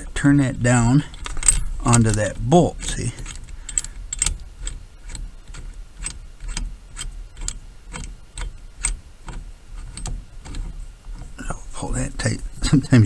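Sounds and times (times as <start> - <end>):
socket ratchet clicking: 3.2 - 10.6.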